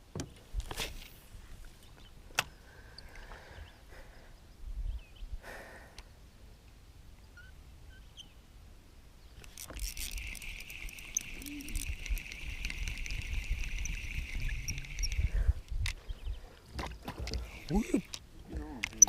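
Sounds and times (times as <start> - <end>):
fishing reel whirring and clicking: 9.4 - 15.5.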